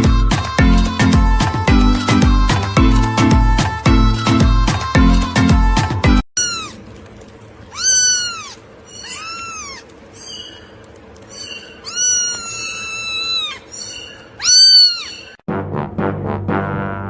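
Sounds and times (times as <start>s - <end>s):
cat meowing: 6.4s - 6.8s, 7.7s - 9.9s, 11.8s - 15.4s.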